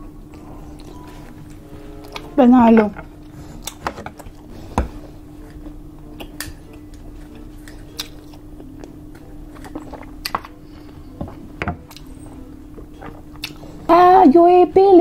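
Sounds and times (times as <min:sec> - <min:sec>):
faint steady hum: 0:00.0 - 0:15.0
wet chewing and biting: 0:03.2 - 0:13.8.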